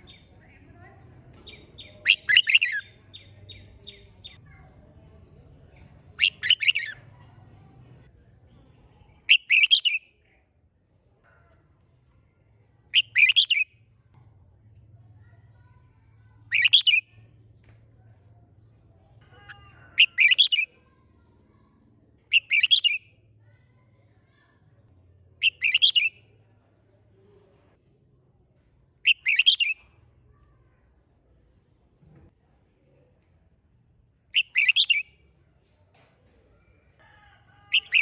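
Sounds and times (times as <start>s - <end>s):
bulbul singing: 1.3s - 4.4s, 5.0s - 8.0s, 9.0s - 10.2s, 11.9s - 14.6s, 15.6s - 18.4s, 19.3s - 23.3s, 24.0s - 27.2s, 28.7s - 30.2s, 34.3s - 35.4s.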